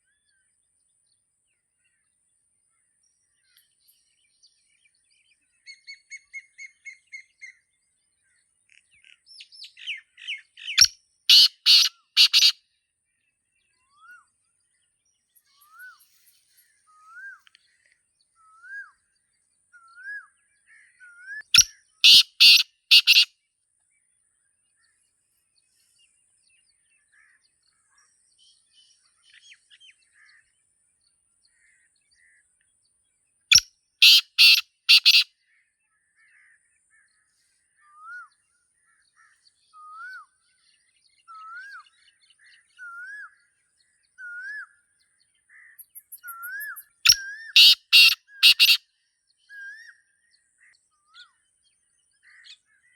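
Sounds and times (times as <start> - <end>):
small bird chirping: 8.7 - 12.6, 21.4 - 23.3, 33.5 - 35.2, 45.8 - 48.8
francolin calling: 10.6 - 12.6, 21.6 - 23.3, 33.5 - 35.2, 45.8 - 48.8.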